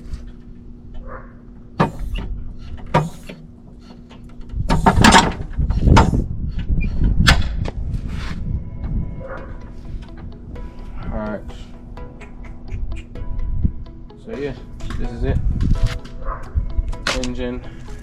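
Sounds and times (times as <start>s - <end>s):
metal clunks and rattles: 0.9s - 7.7s.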